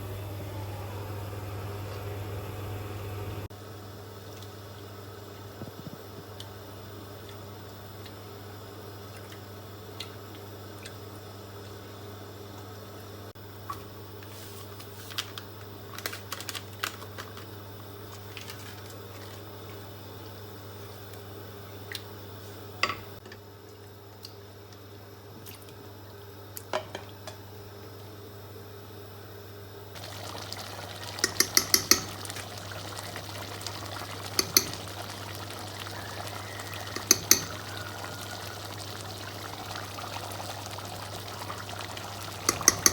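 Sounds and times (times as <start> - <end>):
running water: 30.0 - 42.9.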